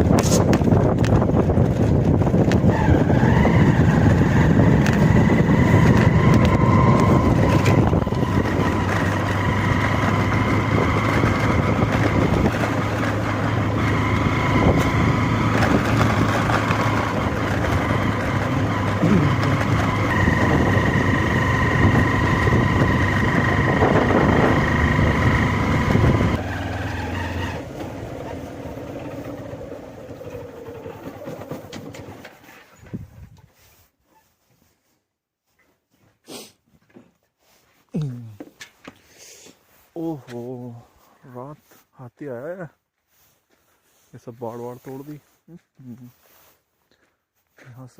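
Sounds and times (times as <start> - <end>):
vehicle engine running: 0.0 - 32.4
road noise: 0.0 - 33.4, 37.5 - 46.6.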